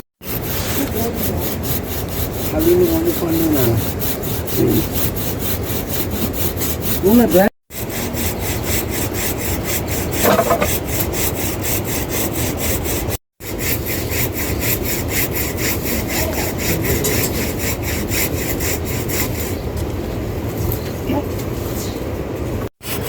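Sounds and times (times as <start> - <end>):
hand saw cutting wood: 0.2 - 19.6, 22.8 - 23.0.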